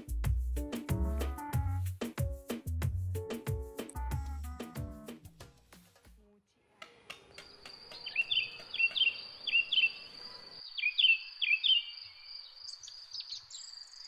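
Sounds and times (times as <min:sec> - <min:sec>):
bird chirping call: 0:07.4 - 0:14.0.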